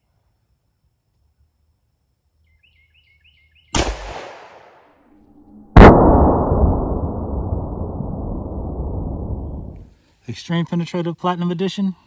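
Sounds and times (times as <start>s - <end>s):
gunshots with echo: 3.8s - 4.9s.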